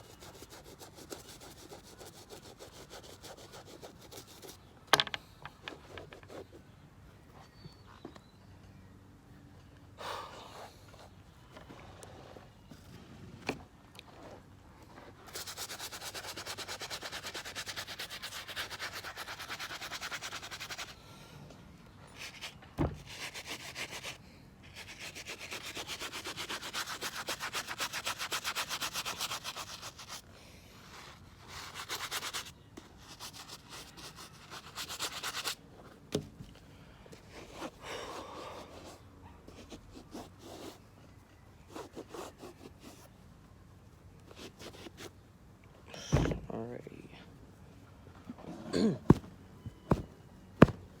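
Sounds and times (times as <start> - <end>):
brush scrubbing a sneaker: 0.0 - 4.6, 15.0 - 21.0, 22.2 - 30.2, 30.9 - 35.6.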